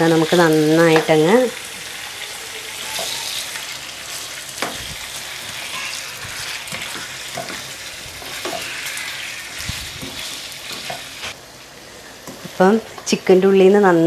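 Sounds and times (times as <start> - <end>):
chicken sizzling in oil: 0.0 - 13.0
spatula scraping a wok: 1.6 - 11.4.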